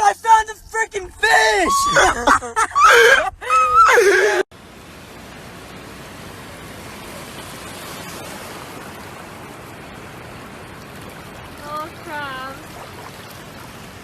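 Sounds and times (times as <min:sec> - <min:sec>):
man shouting excitedly: 0:00.0 - 0:04.0.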